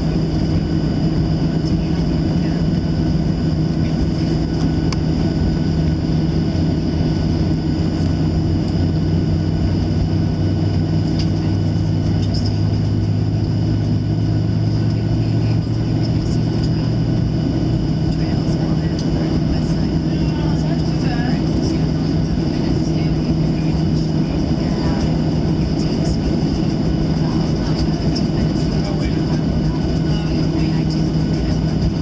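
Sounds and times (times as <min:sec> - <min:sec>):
jet engine cabin drone: 0:00.0 - 0:32.0.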